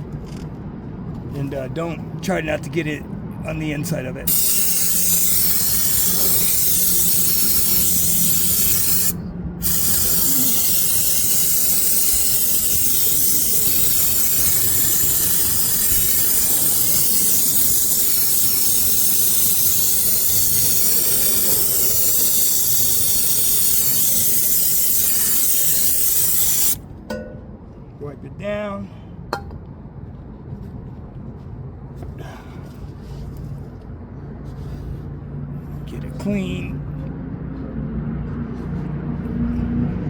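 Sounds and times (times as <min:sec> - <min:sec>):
aerosol can spraying hiss: 0:04.3 - 0:26.8.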